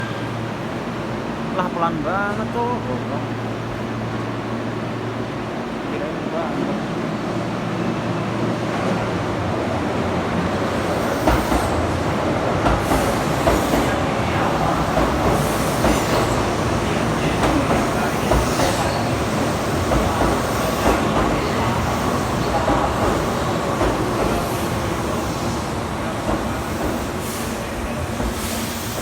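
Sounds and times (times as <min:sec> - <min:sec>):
subway train rumbling on rails: 0:00.0 - 0:29.0
train jolts and clacks: 0:10.4 - 0:29.0.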